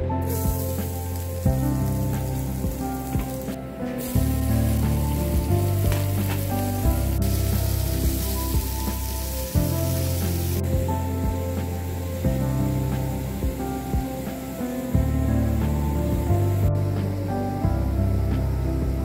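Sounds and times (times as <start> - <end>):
background music: 0.0 - 19.0
food sizzling in hot oil: 0.2 - 17.3.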